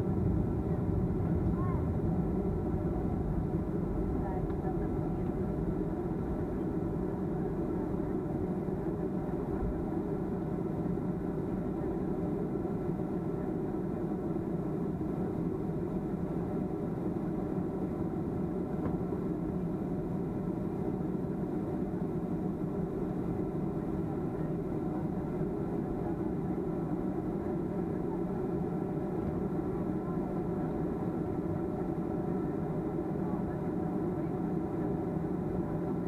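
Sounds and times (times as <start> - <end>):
jet engine drone in cabin: 0.0 - 36.0.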